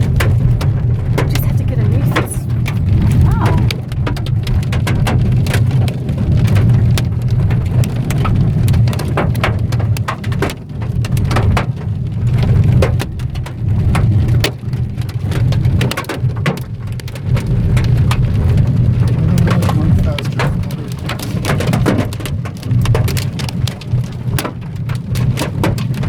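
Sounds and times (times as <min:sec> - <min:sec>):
steady low rumble: 0:00.0 - 0:08.9
hailstones drumming on car roof: 0:00.0 - 0:26.0.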